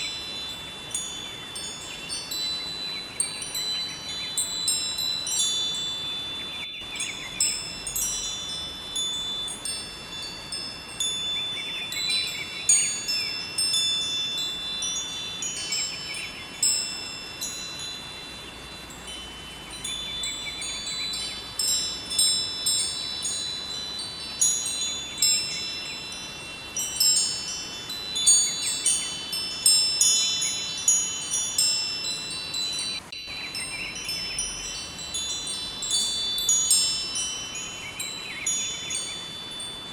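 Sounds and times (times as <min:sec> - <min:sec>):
metal wind chimes ringing: 0:00.0 - 0:39.9.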